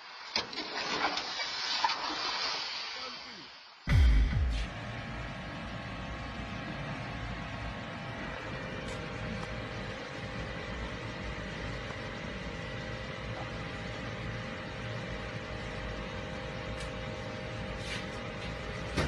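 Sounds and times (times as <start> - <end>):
even hiss: 1.0 - 4.7.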